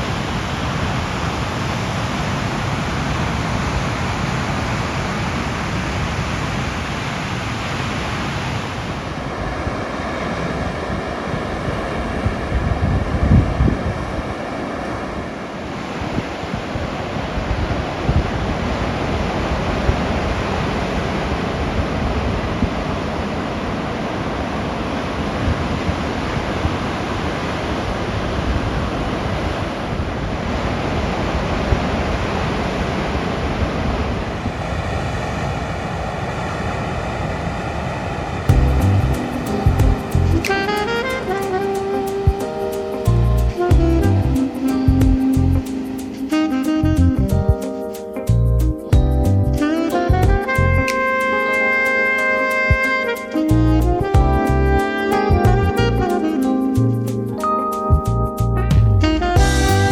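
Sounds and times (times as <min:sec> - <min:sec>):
wind buffeting microphone: 0:00.0 - 0:47.6
surf washing onto shore: 0:00.0 - 0:49.0, 0:49.6 - 0:54.2.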